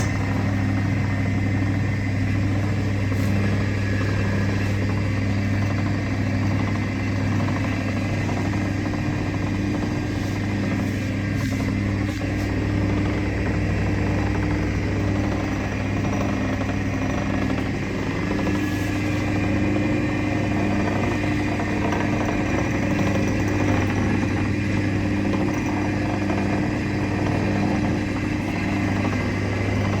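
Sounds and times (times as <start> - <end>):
grinding machine motor hum: 0.0 - 30.0.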